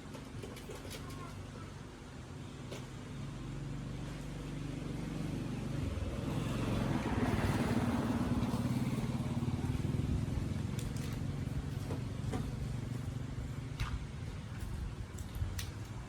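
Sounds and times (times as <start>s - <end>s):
motorbike engine running: 5.0s - 15.0s.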